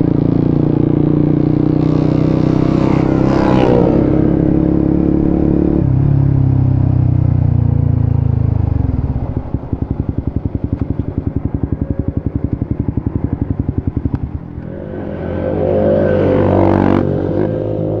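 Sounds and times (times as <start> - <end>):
motorcycle engine running and revving: 0.0 - 18.0.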